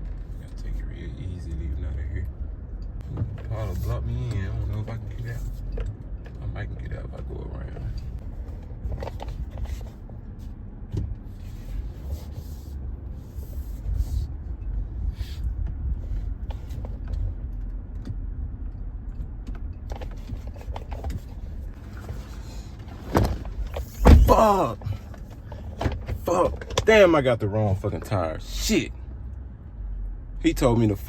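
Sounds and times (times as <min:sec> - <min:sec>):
engine and road rumble: 0:00.0 - 0:31.0
rattles and knocks: 0:07.6 - 0:10.2, 0:15.7 - 0:26.9.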